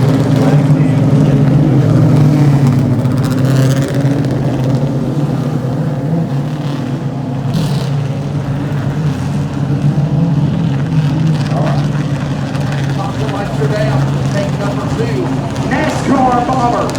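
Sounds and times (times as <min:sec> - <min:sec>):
race car engines running: 0:00.0 - 0:16.9.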